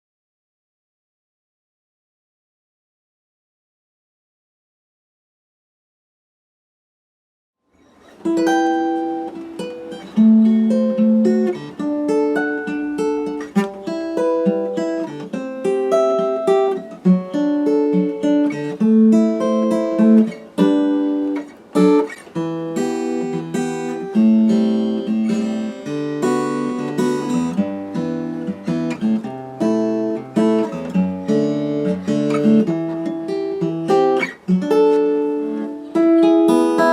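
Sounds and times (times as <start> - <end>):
acoustic guitar music: 7.7 - 36.9.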